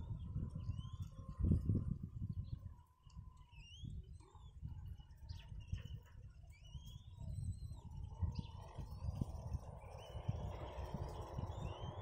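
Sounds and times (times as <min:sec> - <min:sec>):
birds chirping and whistling: 0:03.4 - 0:12.0.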